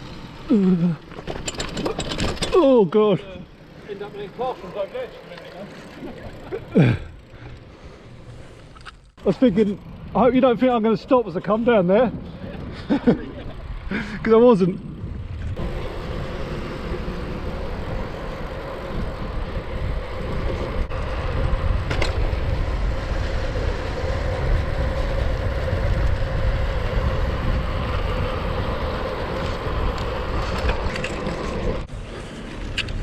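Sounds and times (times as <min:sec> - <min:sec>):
bike tyres rolling rumble: 0:00.0 - 0:33.0
bike ticks and knocks over bumps: 0:01.0 - 0:02.8, 0:16.9 - 0:23.6, 0:24.5 - 0:31.8
wind on microphone: 0:14.8 - 0:33.0.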